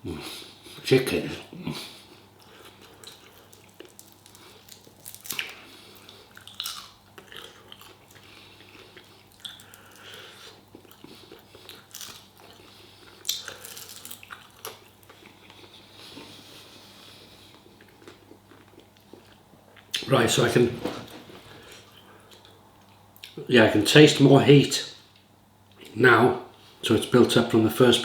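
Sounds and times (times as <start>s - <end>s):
person chewing with mouth smacks: 2.1s - 20.0s.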